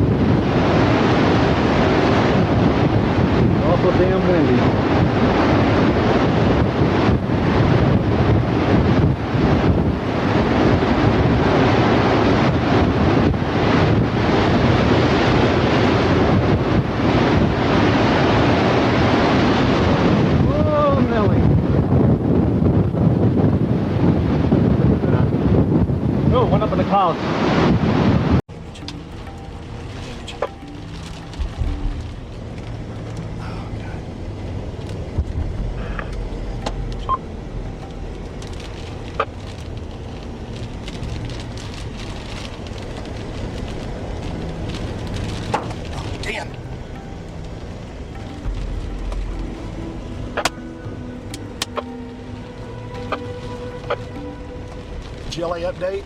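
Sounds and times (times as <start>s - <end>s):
wind blowing on microphone: 0.0s - 56.0s
high beep: 36.5s - 37.3s.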